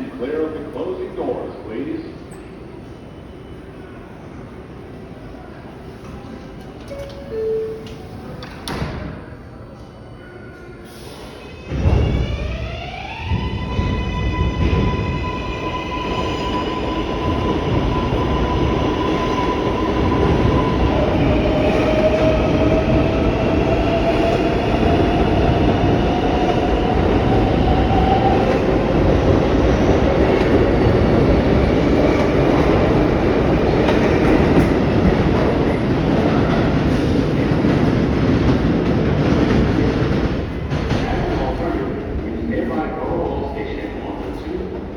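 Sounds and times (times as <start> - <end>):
train wheels rumbling on rail: 10.9 - 44.9.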